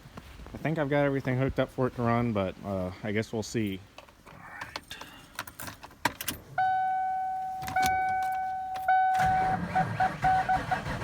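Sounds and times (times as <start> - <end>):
short beeps: 6.6 - 9.6
starter motor cranking engine: 9.2 - 11.0.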